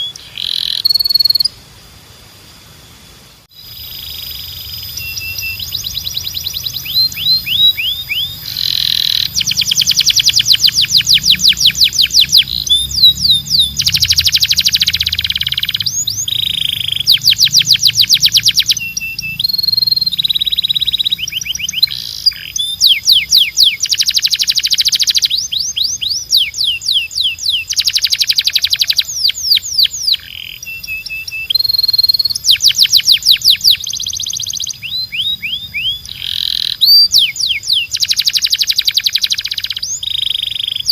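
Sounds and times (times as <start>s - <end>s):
canary singing trills: 0.0s - 1.6s, 3.5s - 40.9s.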